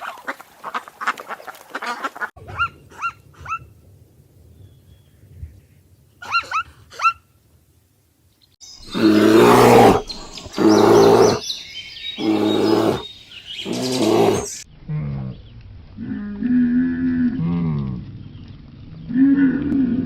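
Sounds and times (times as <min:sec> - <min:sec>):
large mammal calling: 0:08.8 - 0:11.5, 0:12.2 - 0:14.6.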